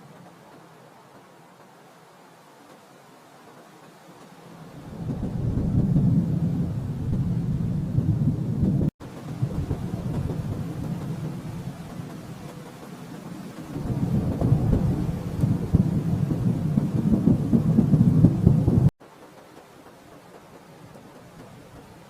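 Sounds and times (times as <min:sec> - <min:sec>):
distant thunder rumbling: 0:04.5 - 0:19.2.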